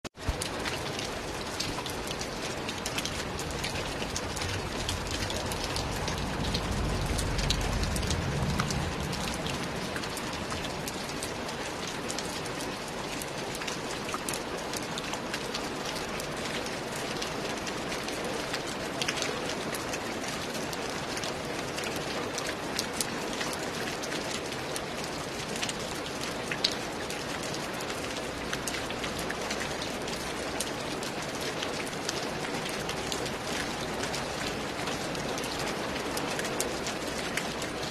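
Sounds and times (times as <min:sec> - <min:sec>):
raindrop hits: 0:00.2 - 0:12.2
steady rain: 0:00.2 - 0:37.9
low rumble: 0:04.1 - 0:11.0.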